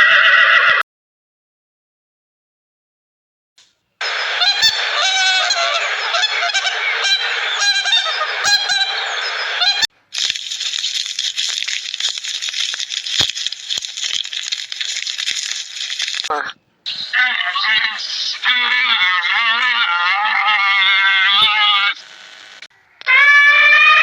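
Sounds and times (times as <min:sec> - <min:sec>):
geese honking: 0:04.2 - 0:09.9, 0:15.8 - 0:22.0.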